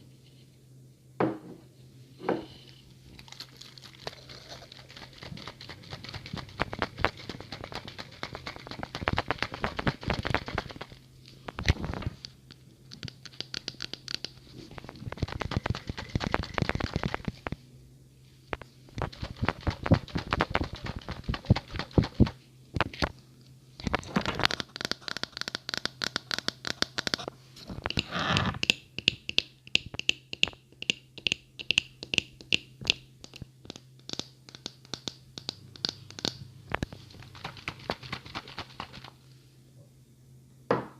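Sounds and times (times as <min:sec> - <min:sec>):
quick taps and scratches: 0:04.8 - 0:12.2, 0:12.9 - 0:17.6, 0:18.6 - 0:23.1, 0:23.8 - 0:28.8, 0:33.2 - 0:39.2.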